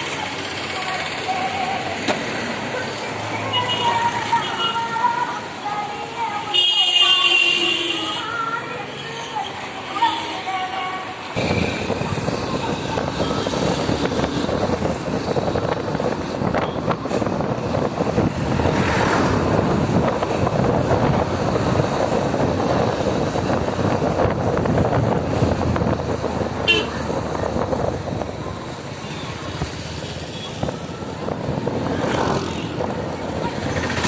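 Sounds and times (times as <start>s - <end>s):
road noise: 0.0s - 34.0s
wind noise: 11.4s - 34.0s.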